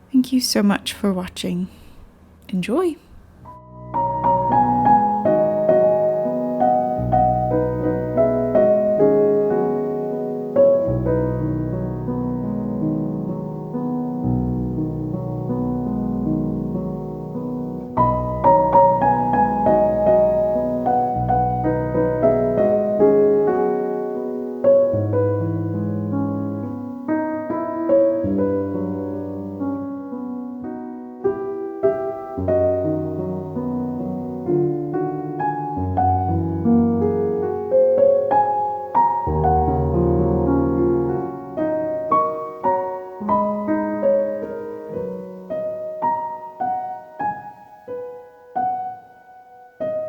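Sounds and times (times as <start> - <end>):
soft piano music: 0.0 - 50.0.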